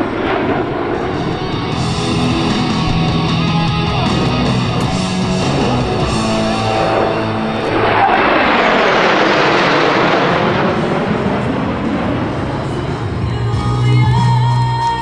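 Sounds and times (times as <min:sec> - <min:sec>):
jet aircraft passing overhead: 0:00.0 - 0:14.5
rock music with electric guitar: 0:00.0 - 0:15.0.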